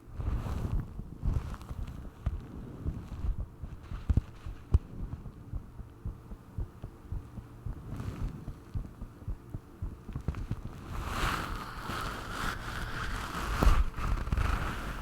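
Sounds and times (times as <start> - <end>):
heartbeat thumps: 0.1 - 11.7.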